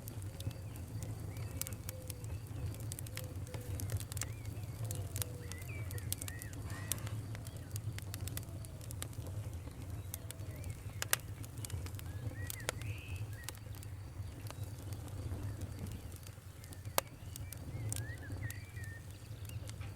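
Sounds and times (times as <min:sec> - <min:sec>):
campfire crackling and popping: 0:00.0 - 0:19.9
birds chirping: 0:00.1 - 0:19.9.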